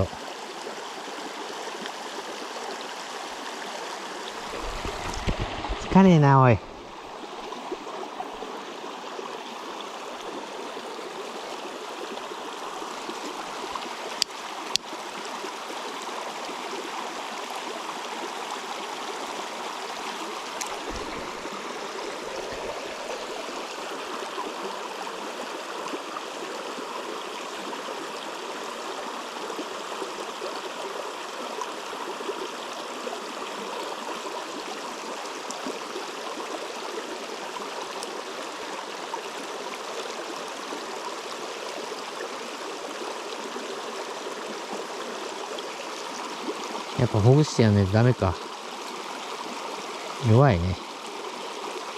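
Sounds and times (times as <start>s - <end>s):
river rushing: 3.3s - 8.8s, 19.8s - 25.3s.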